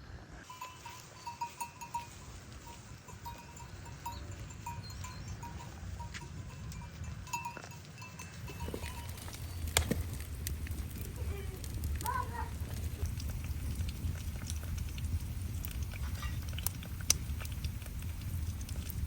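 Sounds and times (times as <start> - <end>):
livestock bells clinking: 0.5 - 9.6
low steady rumble: 1.6 - 19.0.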